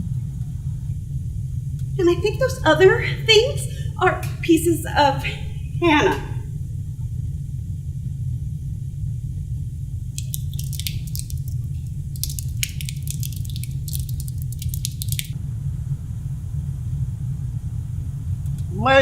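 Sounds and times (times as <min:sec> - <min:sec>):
steady low rumble: 0:00.0 - 0:19.0
wet squelching: 0:10.2 - 0:15.4.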